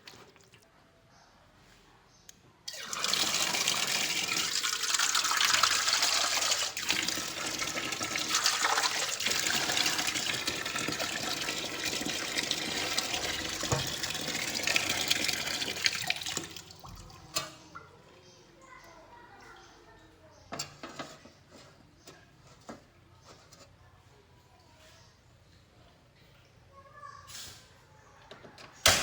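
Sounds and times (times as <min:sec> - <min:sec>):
water running hard: 0:02.7 - 0:17.4.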